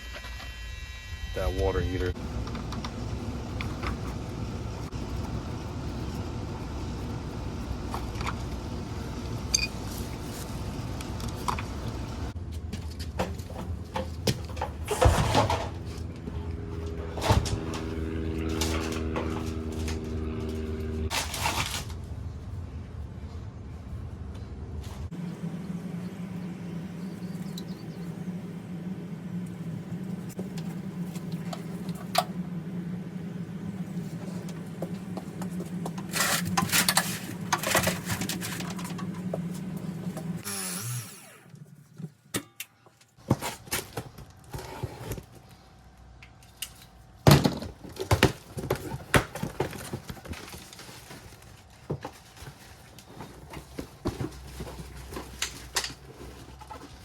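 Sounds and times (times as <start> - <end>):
steady low hum: 0.0 - 42.2
hand tools and pipe fittings clattering: 35.4 - 40.4.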